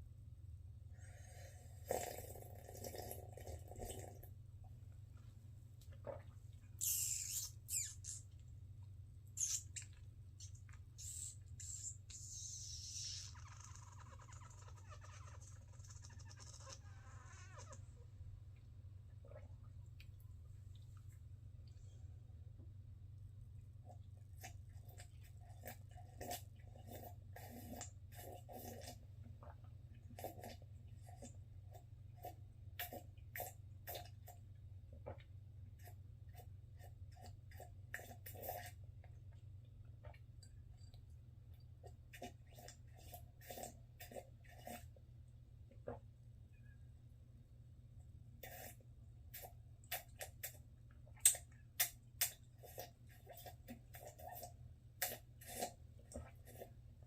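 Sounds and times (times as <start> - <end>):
slurping hot coffee: 1.2 - 4.2, 42.2 - 44.9, 52.6 - 56.8
gulp: 1.8 - 4.3
steady low hum: 3.2 - 57.0.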